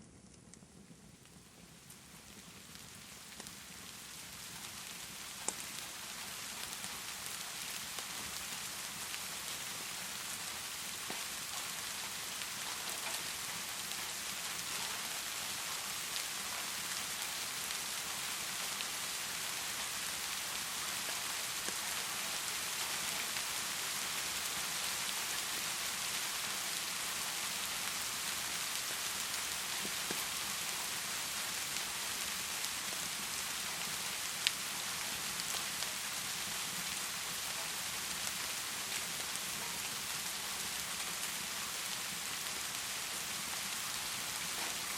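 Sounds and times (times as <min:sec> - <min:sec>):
heavy rain pouring: 0:02.0 - 0:44.9.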